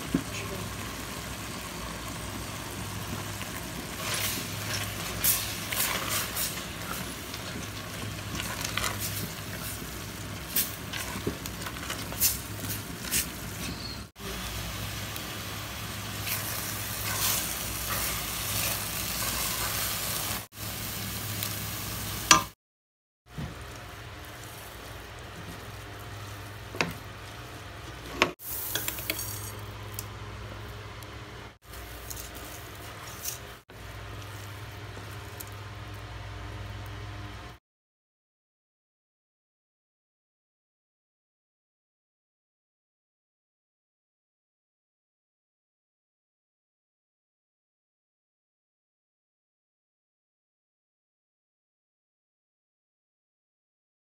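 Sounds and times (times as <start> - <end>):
onions sizzling in sauce: 0.0 - 22.6, 23.3 - 30.5.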